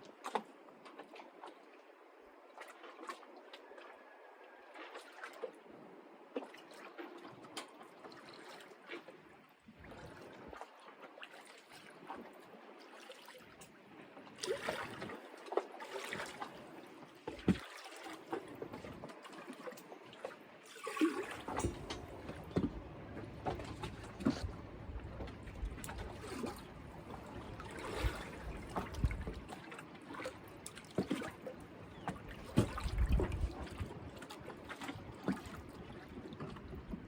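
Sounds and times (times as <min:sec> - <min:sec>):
water splashing and trickling: 0:00.0 - 0:37.0.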